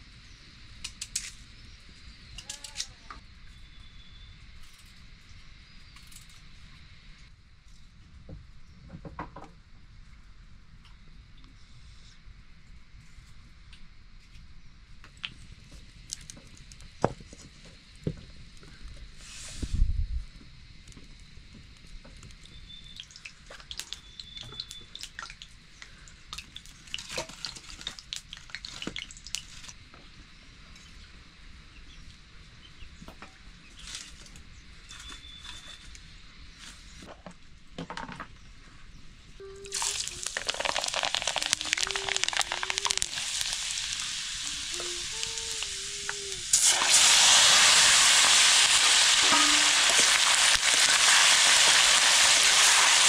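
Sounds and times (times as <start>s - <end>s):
food sizzling in hot oil: 39.7s - 53.0s.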